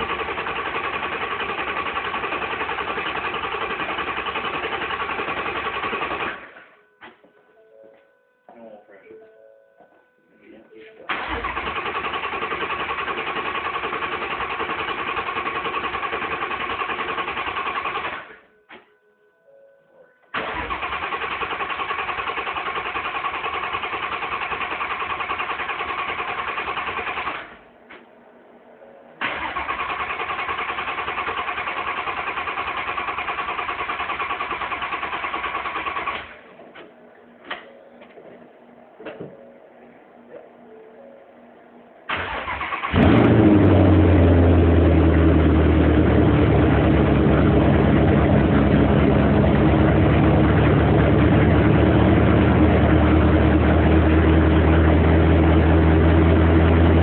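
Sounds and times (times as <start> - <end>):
engine starter cranking: 11.1 - 18.4, 20.3 - 27.6, 29.2 - 36.4, 42.1 - 43.7.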